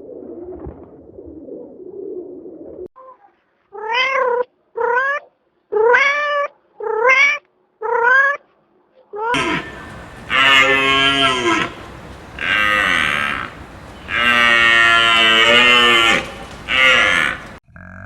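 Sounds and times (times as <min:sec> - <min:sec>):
low steady hum: 0:09.4 - 0:17.6.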